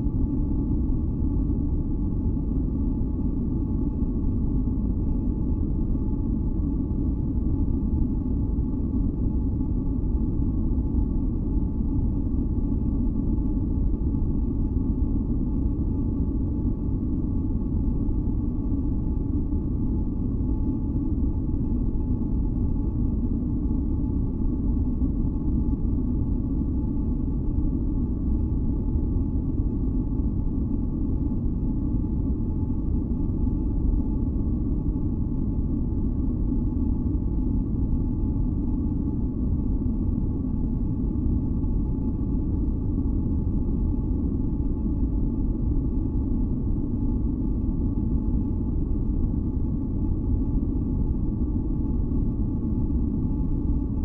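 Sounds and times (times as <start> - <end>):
faint steady humming tones: 0.0 - 54.0.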